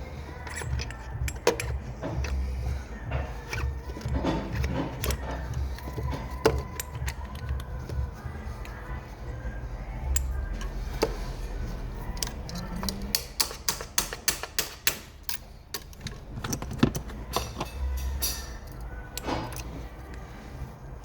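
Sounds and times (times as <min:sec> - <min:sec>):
hand tools clicking and clinking: 0:00.0 - 0:09.1, 0:09.9 - 0:20.8
steady low hum: 0:00.0 - 0:13.5
background music: 0:00.0 - 0:21.0.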